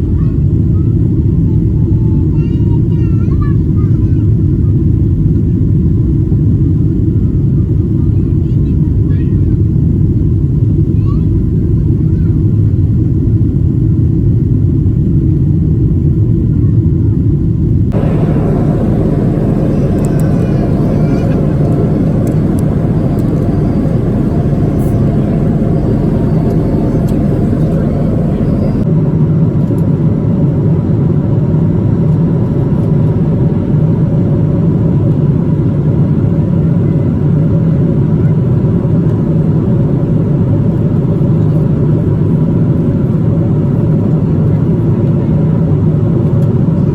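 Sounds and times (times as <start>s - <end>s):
jet cabin engine rumble: 0.0s - 29.0s.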